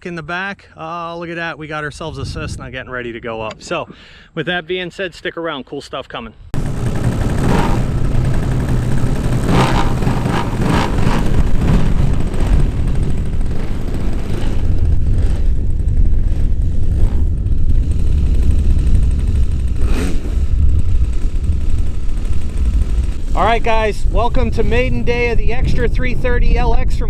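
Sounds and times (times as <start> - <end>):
piston engine running: 6.6 - 25.3.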